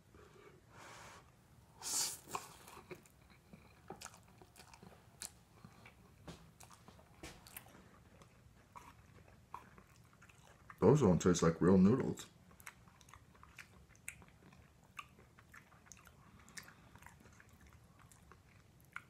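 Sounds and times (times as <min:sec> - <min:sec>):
lip smacks: 0:02.0 - 0:07.8, 0:12.6 - 0:19.0
wet chewing: 0:02.2 - 0:11.0, 0:11.8 - 0:19.0.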